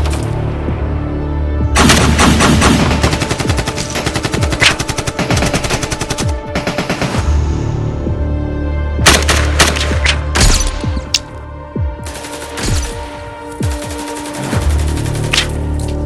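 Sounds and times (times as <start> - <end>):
low musical drone: 0.0 - 16.0
rapid automatic gunfire: 1.8 - 7.4.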